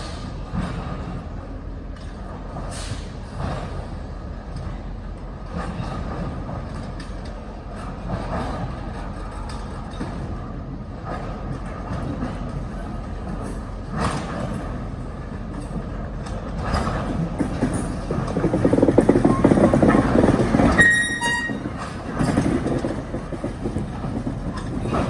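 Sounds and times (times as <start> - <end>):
diesel locomotive rumble: 0.0 - 25.0
rolling train cars: 0.0 - 25.0
train knocks: 0.0 - 25.0.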